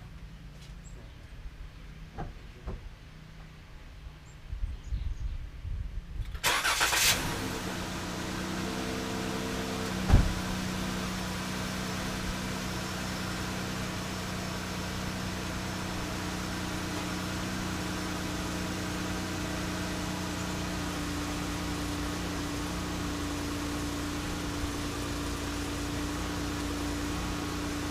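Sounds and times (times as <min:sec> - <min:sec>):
car engine starting and idling: 0:06.2 - 0:27.9.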